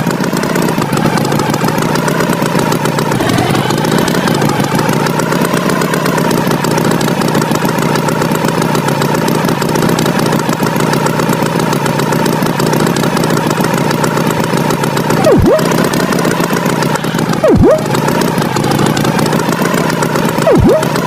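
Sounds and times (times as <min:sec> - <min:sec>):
cartoon tractor engine: 0:00.0 - 0:21.0
swooping tone: 0:15.2 - 0:16.0, 0:17.4 - 0:17.9, 0:20.4 - 0:21.0.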